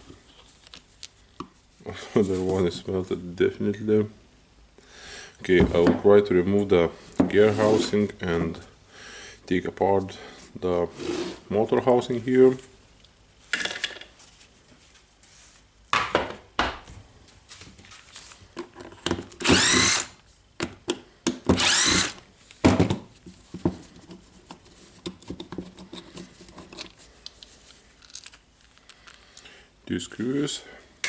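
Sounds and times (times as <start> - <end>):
electric screwdriver whirring: 19.4 - 20.1, 21.6 - 22.2
clicks and knocks of handled parts: 23.5 - 29.5.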